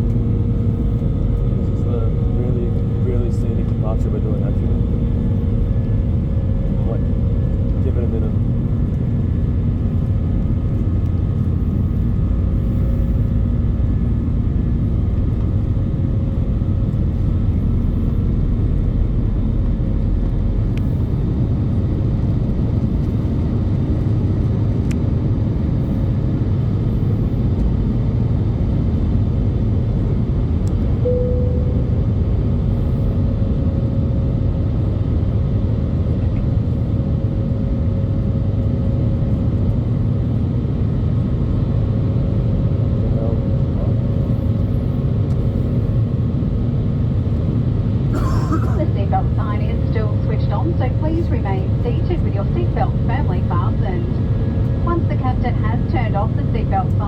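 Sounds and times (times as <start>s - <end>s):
aircraft cabin engine rumble: 0.0s - 57.0s
faint steady tones: 31.0s - 32.2s, 48.8s - 57.0s.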